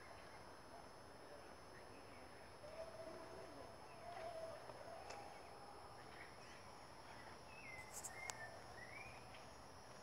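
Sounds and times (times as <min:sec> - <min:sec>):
distant bird calls: 0:01.8 - 0:09.5.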